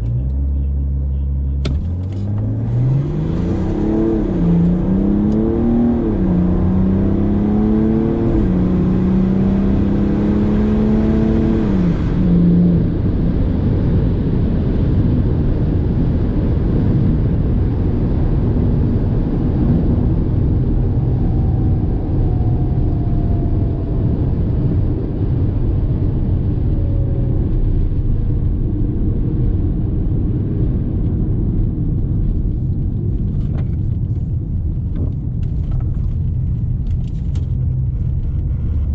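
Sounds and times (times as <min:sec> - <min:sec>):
car engine revving: 0:00.0 - 0:15.1
road noise: 0:00.0 - 0:38.9.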